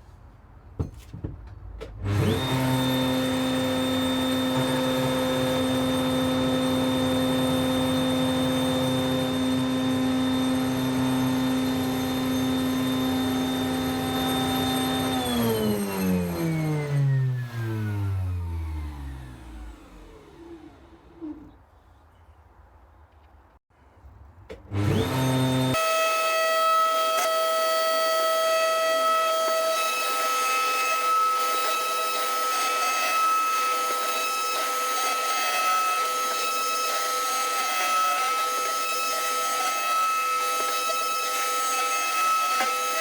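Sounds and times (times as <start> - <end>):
router cutting wood: 2.0 - 21.6, 24.7 - 43.0.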